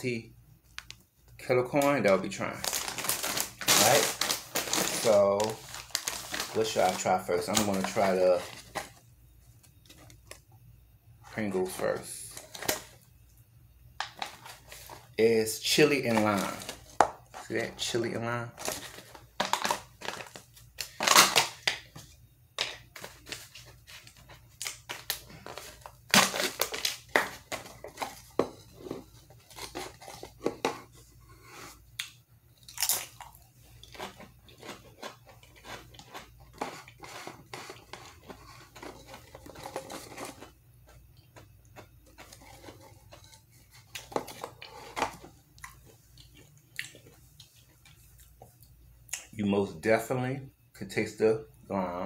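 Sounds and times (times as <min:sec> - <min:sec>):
crunching and chewing crisps: 0:02.5 - 0:08.9, 0:23.4 - 0:30.4, 0:32.0 - 0:40.6.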